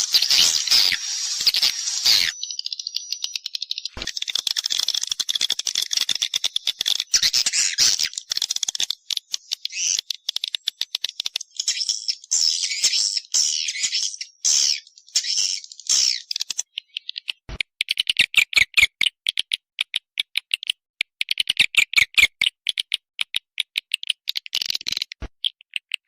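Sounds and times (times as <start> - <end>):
swiftlets twittering and clicking: 0.0 - 26.0.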